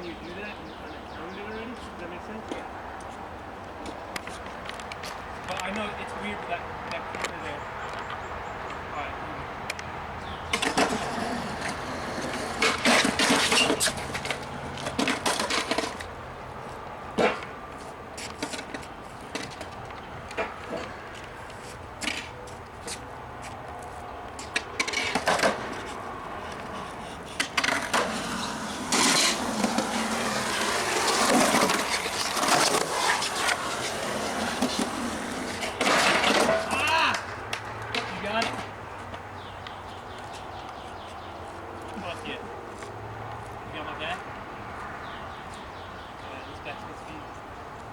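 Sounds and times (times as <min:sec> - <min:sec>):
skateboard wheels rolling on concrete: 0:00.0 - 0:47.9
skateboard clacks and scrapes: 0:10.5 - 0:16.2, 0:17.2 - 0:23.1, 0:24.4 - 0:39.2.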